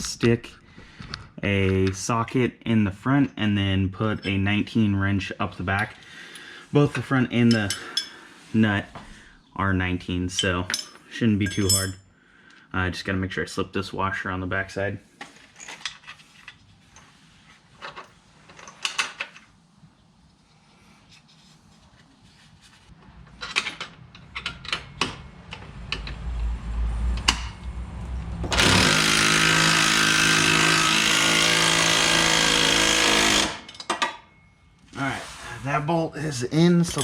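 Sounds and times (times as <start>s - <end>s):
metal clinks and knocks: 4.1s - 4.6s, 10.3s - 12.0s, 33.6s - 34.8s, 36.7s - 37.0s
power tool driving bolt: 28.4s - 33.8s.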